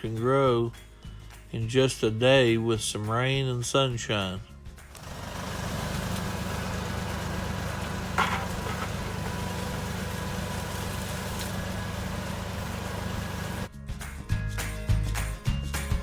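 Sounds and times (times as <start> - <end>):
low mechanical rumble: 4.9 - 13.7.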